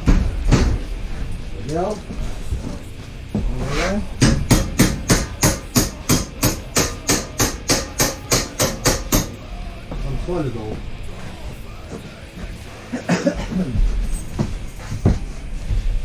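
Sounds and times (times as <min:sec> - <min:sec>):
hammer striking: 0:00.0 - 0:00.9, 0:02.2 - 0:10.2.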